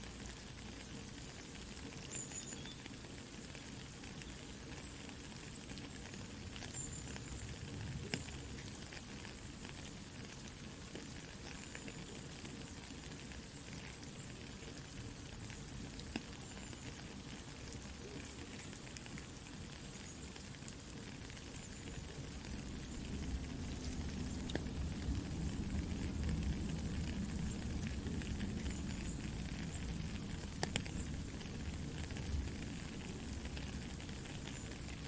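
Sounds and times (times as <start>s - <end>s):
soft rain falling: 0.0s - 35.0s
campfire crackling and popping: 0.2s - 35.0s.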